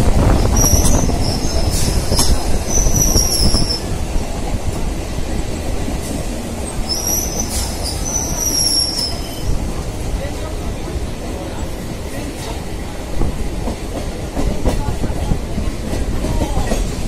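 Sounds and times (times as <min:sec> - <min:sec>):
train wheels rumbling on track: 0:00.0 - 0:17.0
high-pitched wheel squeal: 0:06.9 - 0:09.5.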